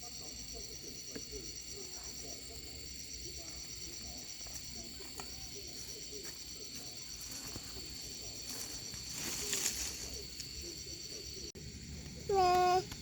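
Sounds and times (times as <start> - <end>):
fast pulsing insect trill: 0.0 - 13.0
insects chirring: 0.0 - 13.0.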